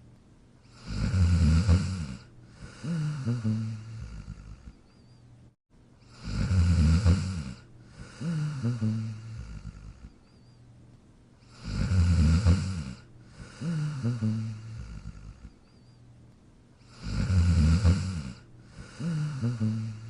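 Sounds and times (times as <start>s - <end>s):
dog snoring: 0.6s - 5.2s, 6.1s - 10.5s, 11.4s - 16.0s, 16.8s - 20.0s.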